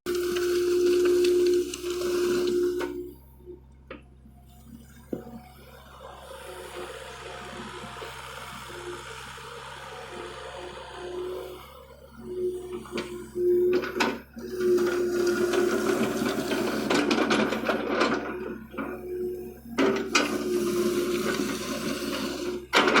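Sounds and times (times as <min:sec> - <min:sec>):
excavator hydraulic whine: 0:00.1 - 0:23.0
clattering and scraping: 0:13.7 - 0:18.9, 0:21.2 - 0:23.0.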